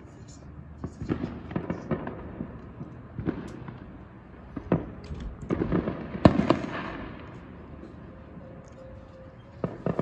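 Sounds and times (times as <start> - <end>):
fireworks popping and banging: 0.8 - 7.6, 9.6 - 10.0.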